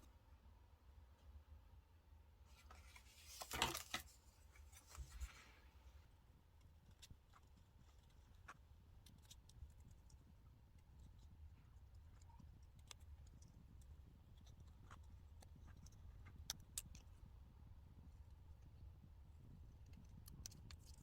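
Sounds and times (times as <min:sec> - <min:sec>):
paper rustling: 0:02.5 - 0:05.6.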